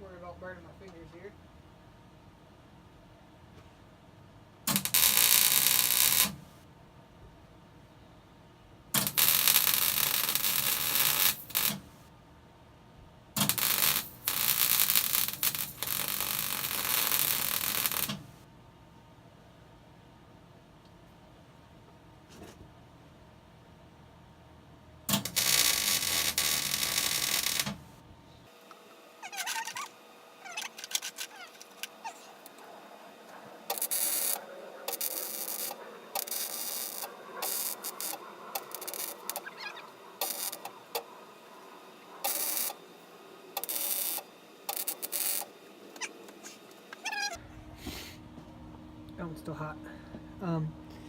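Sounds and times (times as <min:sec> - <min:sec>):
welder arc crackling: 0:04.7 - 0:06.5, 0:09.0 - 0:12.0, 0:13.4 - 0:18.4, 0:25.1 - 0:28.0, 0:33.3 - 0:42.9, 0:43.5 - 0:47.0.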